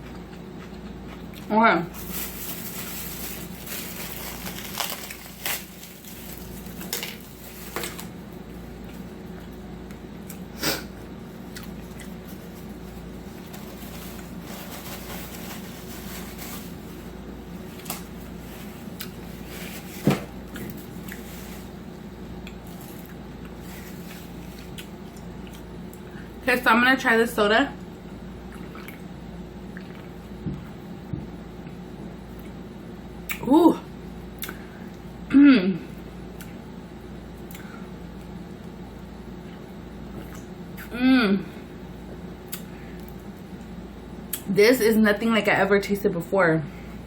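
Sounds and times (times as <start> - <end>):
person chewing: 0.0 - 2.0, 8.8 - 14.3, 18.9 - 19.5, 20.5 - 21.3, 22.3 - 26.1, 28.5 - 29.1, 29.7 - 30.7
steady low hum: 0.0 - 47.0.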